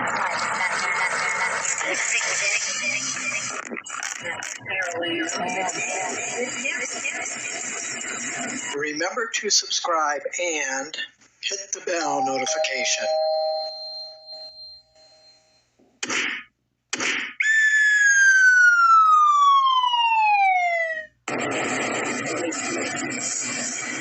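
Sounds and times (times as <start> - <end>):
ringing ding: 12.1 - 15.7
falling whistle tone: 17.4 - 21.1.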